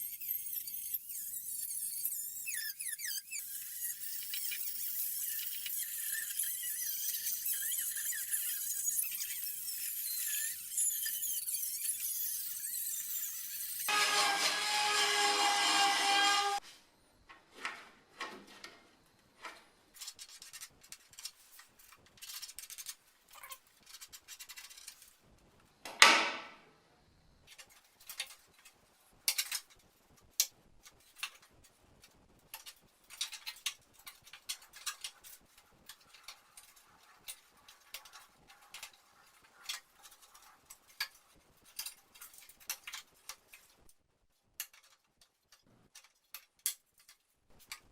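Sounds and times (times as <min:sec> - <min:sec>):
high-pitched power tool: 0:00.0 - 0:16.6
scraping and rubbing on metal: 0:00.0 - 0:16.6, 0:32.6 - 0:43.7.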